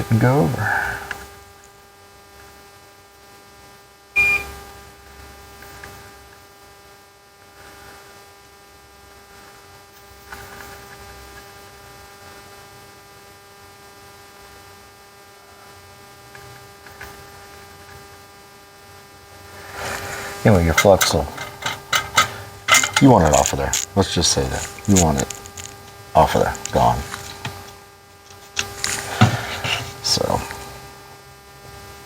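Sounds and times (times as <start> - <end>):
electrical hum: 19.5 - 31.2.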